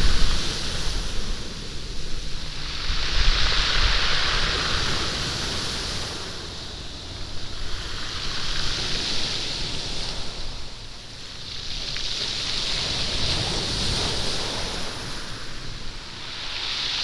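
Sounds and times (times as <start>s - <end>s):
waves rattling pebbles: 0.0s - 17.0s.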